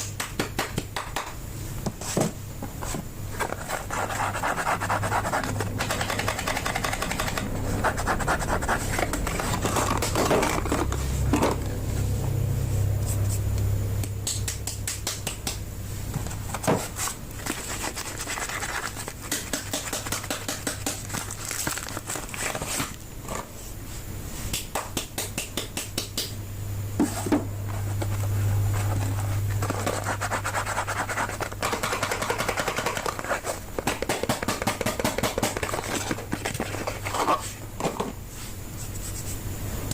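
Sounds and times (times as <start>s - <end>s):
soap wrappers crinkling: 20.9s - 23.0s.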